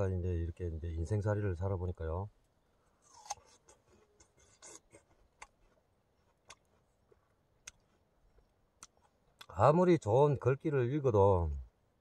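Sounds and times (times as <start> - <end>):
faint crunchy chewing: 2.8 - 9.6.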